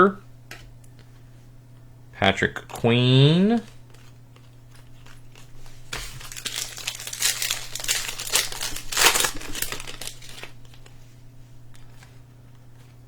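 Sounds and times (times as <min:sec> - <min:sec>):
plastic wrapper tearing and crinkling: 0:03.7 - 0:11.0.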